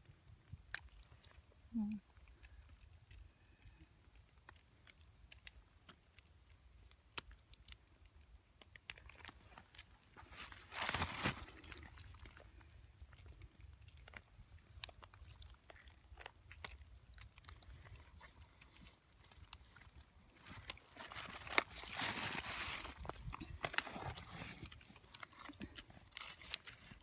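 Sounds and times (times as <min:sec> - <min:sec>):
crunchy clicks of mushrooms: 0:00.0 - 0:27.0
leaves rustling: 0:09.5 - 0:12.3, 0:18.1 - 0:27.0.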